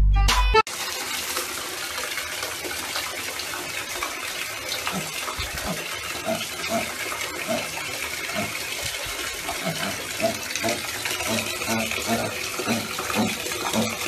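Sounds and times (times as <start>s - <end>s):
running water rushing: 0.7s - 14.0s
piglet grunting: 4.9s - 8.6s, 9.5s - 14.0s.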